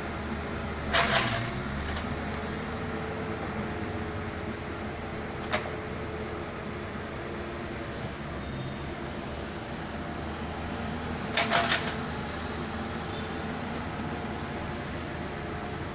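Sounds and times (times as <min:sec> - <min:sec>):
excavator engine running: 0:00.0 - 0:15.9
metal clanks: 0:11.4 - 0:12.0.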